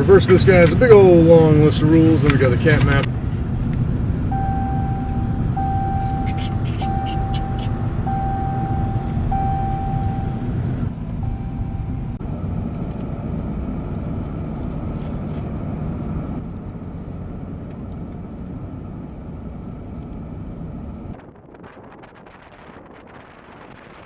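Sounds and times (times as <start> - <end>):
car driving rumble: 0.0 - 24.0
faint steady whine: 4.2 - 12.2.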